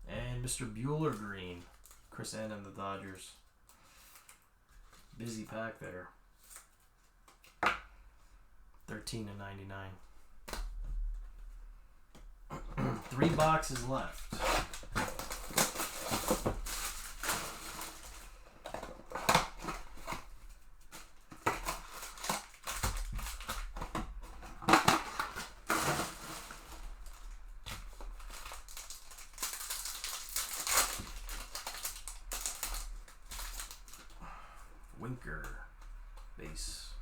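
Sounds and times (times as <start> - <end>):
wrappers crinkling and tearing: 1.0 - 2.2, 12.8 - 34.3.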